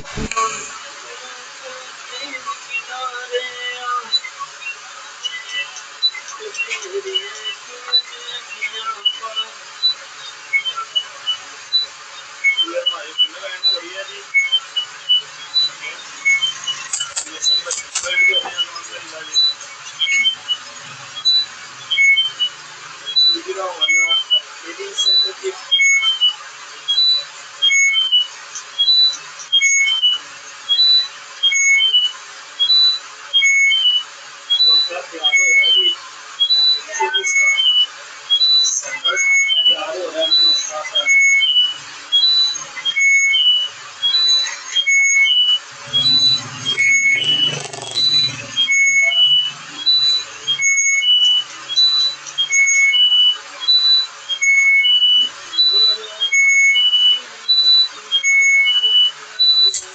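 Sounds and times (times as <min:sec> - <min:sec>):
electronic beeper rising tune: 0:45.7 - 0:49.1.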